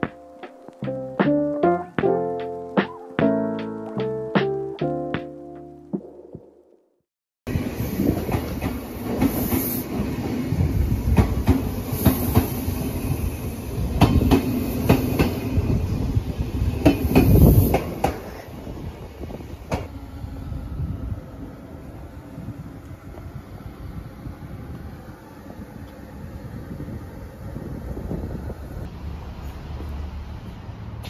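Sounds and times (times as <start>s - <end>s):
electric train rumble: 7.5s - 31.0s.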